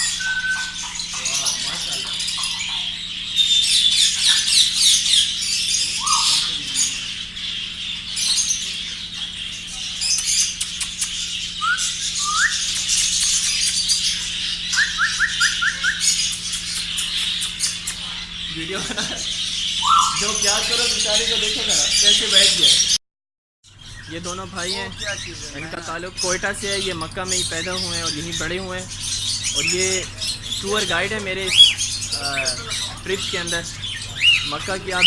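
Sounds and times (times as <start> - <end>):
rising whistled notes: 0.0 - 0.8, 19.8 - 20.3
rising whistles: 0.0 - 0.8, 5.8 - 6.8, 11.6 - 12.7, 19.8 - 20.5
birds chattering and chirping: 0.0 - 23.0, 23.7 - 35.0.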